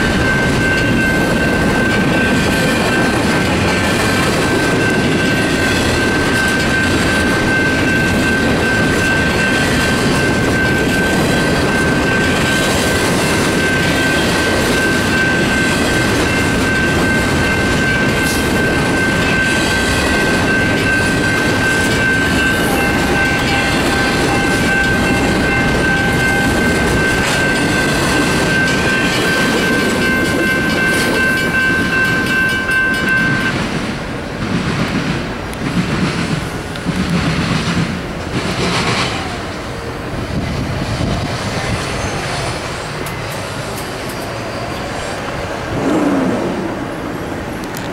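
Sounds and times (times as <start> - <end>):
crossing bell ringing: 0.0 - 33.8
freight train wheels rumbling: 0.0 - 47.9.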